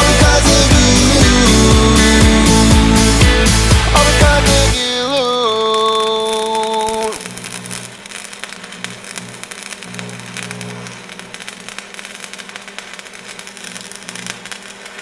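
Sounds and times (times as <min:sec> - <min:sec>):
crackling noise: 0:04.7 - 0:15.0.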